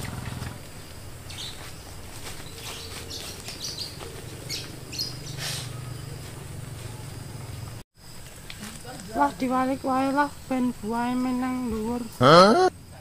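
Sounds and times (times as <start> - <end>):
small birds chirping: 0.2 - 7.8.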